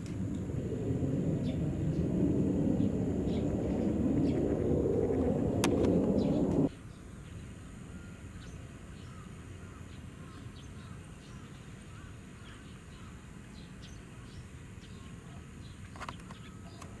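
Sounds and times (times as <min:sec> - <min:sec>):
low outdoor rumble: 0:00.0 - 0:06.7.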